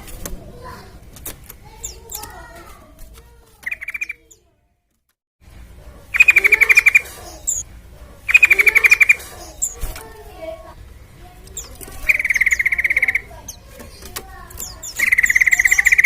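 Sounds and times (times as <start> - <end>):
bulbul chattering call: 3.6 - 4.4, 6.1 - 7.6, 8.2 - 9.8, 11.5 - 16.0
soft bird notes: 8.3 - 16.0.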